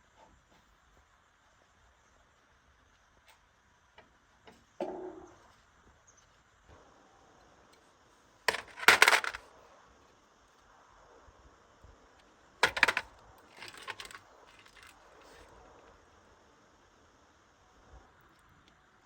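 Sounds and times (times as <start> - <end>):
small metal pieces clinking: 8.5 - 9.4, 12.6 - 14.9.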